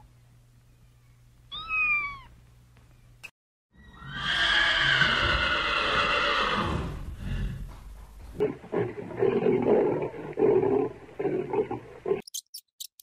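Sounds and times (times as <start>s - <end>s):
horse whinnying: 3.8s - 7.0s.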